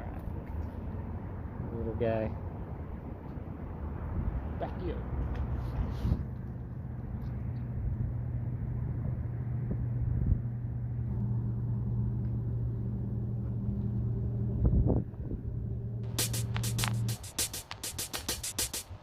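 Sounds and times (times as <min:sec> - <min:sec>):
engine running: 0:06.4 - 0:19.0.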